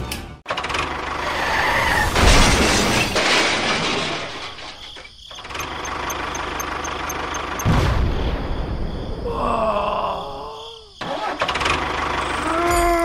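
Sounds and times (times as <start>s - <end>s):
tractor engine rumbling: 2.8s - 7.7s, 10.6s - 12.4s
rapid light ticking: 5.3s - 7.7s.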